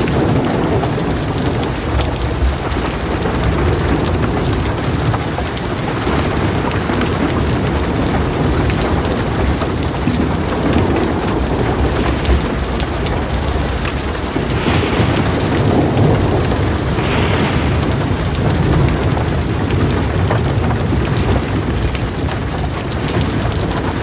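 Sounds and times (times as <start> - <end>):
heavy rain on a metal roof: 0.0 - 24.0
thunder rumbling: 14.3 - 21.7.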